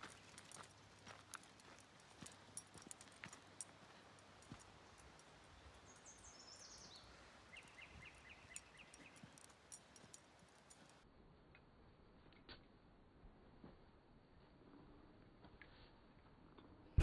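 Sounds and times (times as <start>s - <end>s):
faint bird song: 3.6s - 10.9s.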